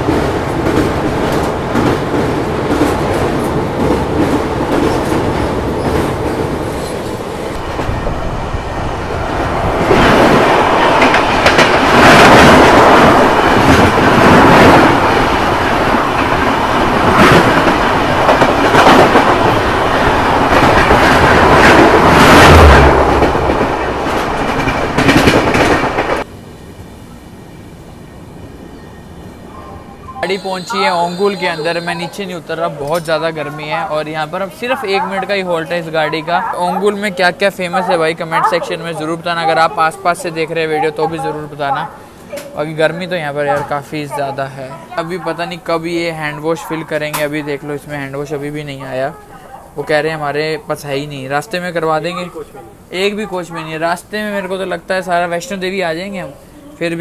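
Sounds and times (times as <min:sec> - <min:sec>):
wind buffeting microphone: 0:00.0 - 0:26.2
passing train rushing: 0:00.0 - 0:57.0
train running at speed: 0:00.0 - 0:57.0.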